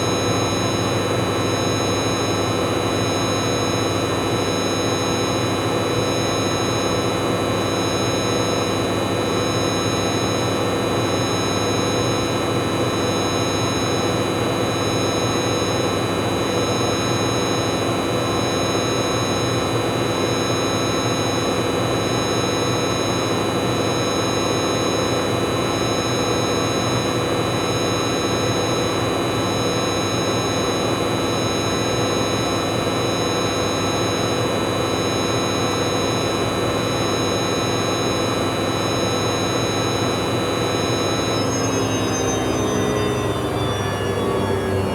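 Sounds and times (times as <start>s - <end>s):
motor high-pitched whine: 0.0s - 44.9s.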